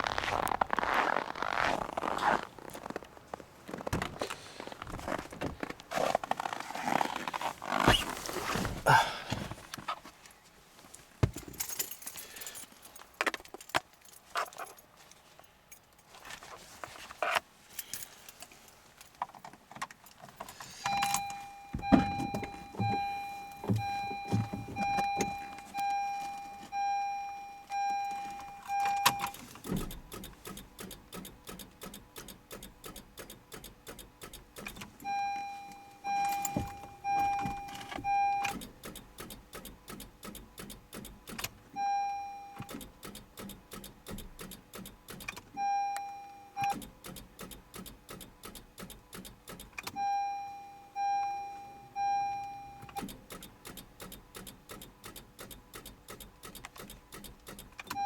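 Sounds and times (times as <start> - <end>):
keys rattling: 11.3 - 16.3, 17.7 - 26.8
dashboard warning chime beeping: 20.8 - 29.4, 35.0 - 38.7, 41.8 - 42.9, 45.5 - 46.9, 49.9 - 53.2.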